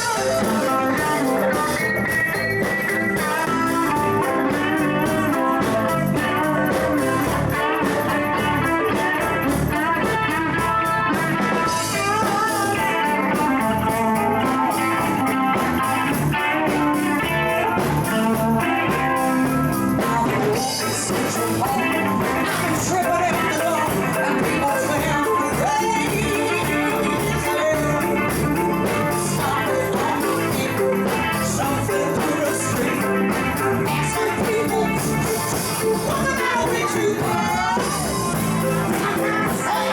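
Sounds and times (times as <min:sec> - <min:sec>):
live band electric guitar jam: 0:00.0 - 0:39.9.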